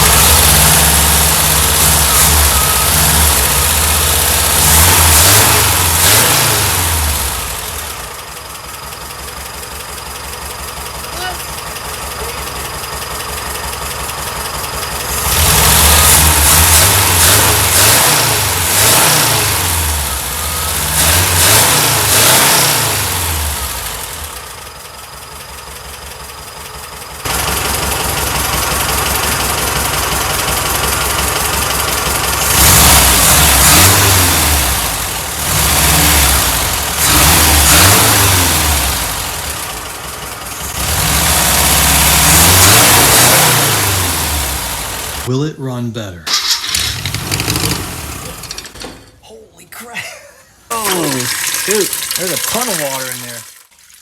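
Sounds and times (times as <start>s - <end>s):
car engine revving: 0.0s - 8.2s, 14.9s - 24.4s, 27.3s - 45.3s, 46.3s - 48.8s.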